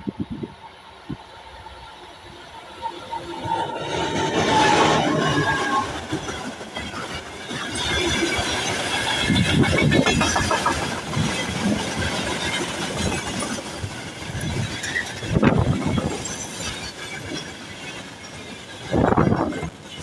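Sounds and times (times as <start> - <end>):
train wheels knocking over rail joints: 7.8 - 16.7.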